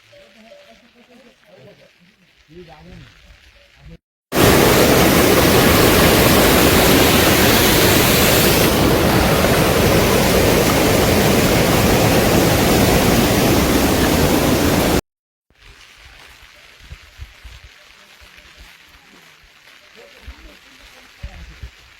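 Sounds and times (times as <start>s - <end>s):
water rushing: 4.4s - 15.0s.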